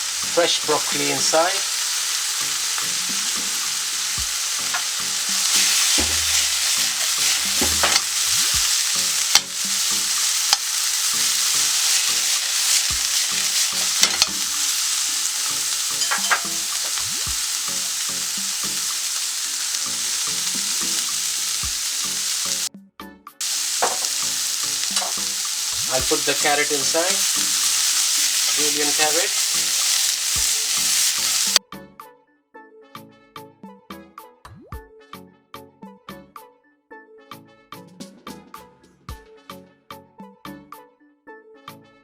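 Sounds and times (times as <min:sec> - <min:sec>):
food sizzling in hot oil: 0:00.0 - 0:22.7, 0:23.4 - 0:31.6
utensil clicking against pan: 0:02.1 - 0:22.7, 0:23.4 - 0:31.6.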